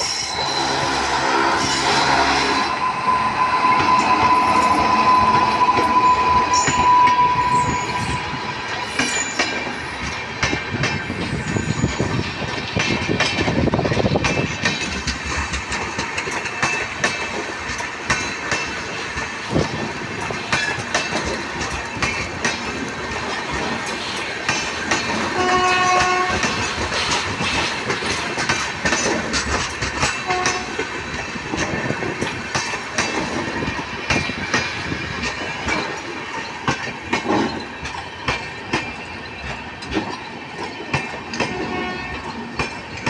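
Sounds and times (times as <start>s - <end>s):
steady high tone: 0.0s - 9.8s
train wheels clattering: 0.0s - 43.0s.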